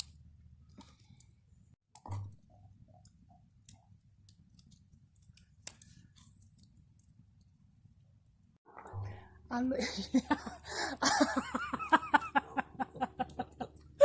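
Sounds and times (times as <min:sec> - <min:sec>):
wood fire crackling and popping: 0:00.0 - 0:08.9, 0:12.8 - 0:14.0.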